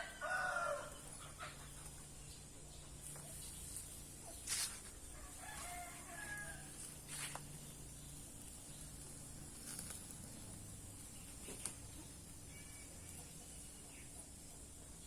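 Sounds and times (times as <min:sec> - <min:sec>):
faint rooster crowing: 0:00.0 - 0:01.7, 0:05.0 - 0:07.3.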